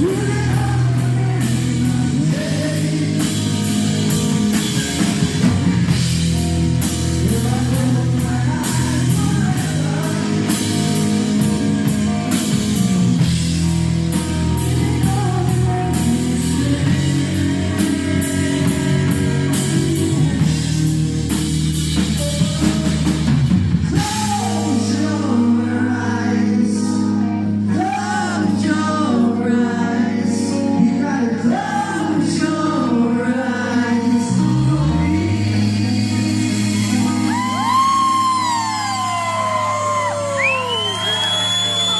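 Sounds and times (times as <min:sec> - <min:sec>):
rock song with singing: 0:00.0 - 0:41.9.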